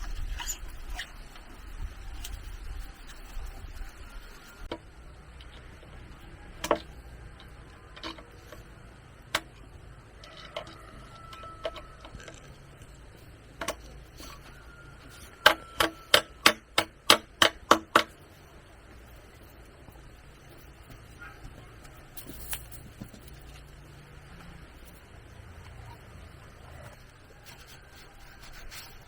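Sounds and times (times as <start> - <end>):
hand tool striking bamboo: 15.4 - 18.2.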